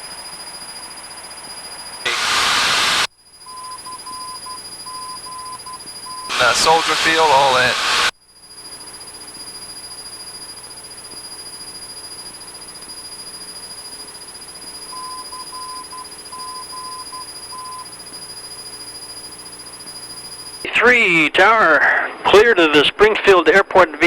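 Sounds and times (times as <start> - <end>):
aircraft engine drone: 2.0 - 3.1, 6.0 - 8.1
morse code beeps: 3.5 - 8.1, 14.8 - 18.0.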